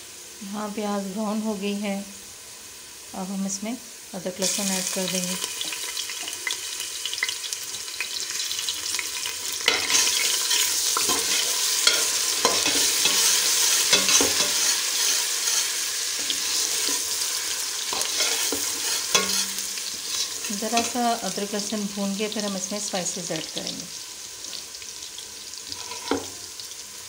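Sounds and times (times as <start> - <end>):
food sizzling in hot oil: 0.0 - 27.0
metal spoon scraping a pan: 9.6 - 21.0, 25.7 - 26.4.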